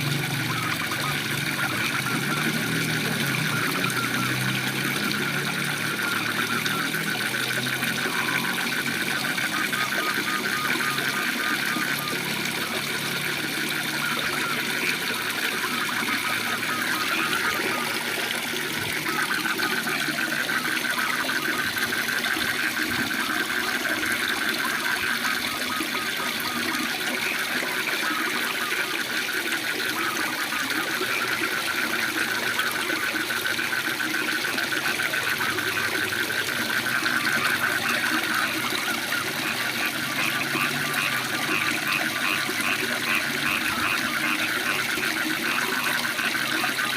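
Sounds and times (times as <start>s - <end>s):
frogs trilling: 0.0s - 46.9s
waterfall rushing: 11.2s - 32.5s.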